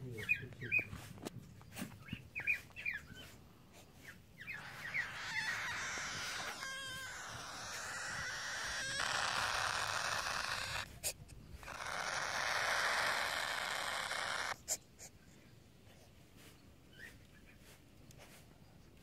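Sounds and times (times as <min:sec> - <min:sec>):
baby birds raspy hissing: 0:03.2 - 0:15.2.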